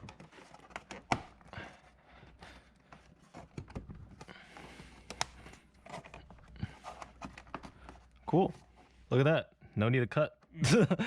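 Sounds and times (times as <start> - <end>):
plastic clicks and light knocks: 5.0 - 6.3.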